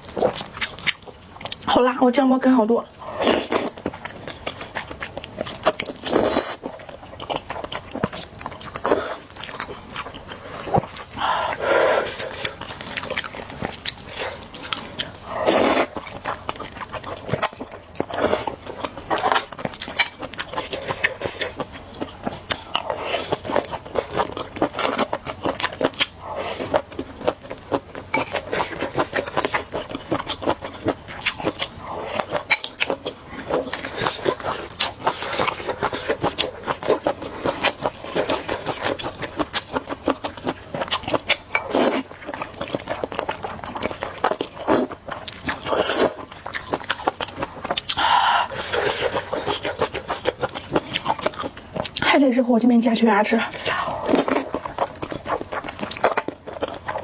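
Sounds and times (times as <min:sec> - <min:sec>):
chewing and biting noodles: 0:00.0 - 0:01.7, 0:03.0 - 0:52.0, 0:53.5 - 0:57.0.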